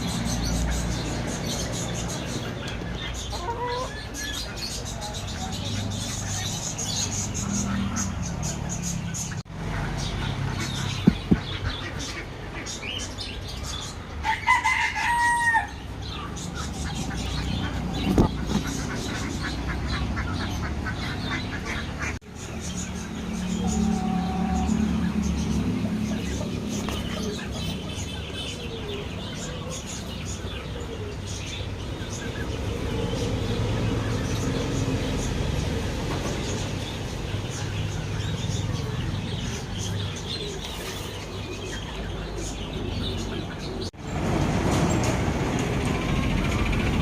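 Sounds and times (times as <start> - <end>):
chickens clucking: 0.0 - 31.2
birds chirping: 0.0 - 47.0
rooster crowing: 14.2 - 15.8.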